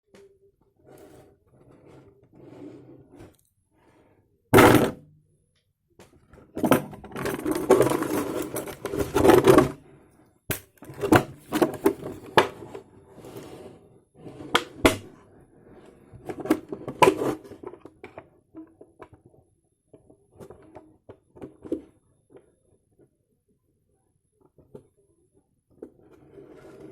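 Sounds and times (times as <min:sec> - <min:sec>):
plastic bottle knocking and crinkling: 0:04.6 - 0:05.1.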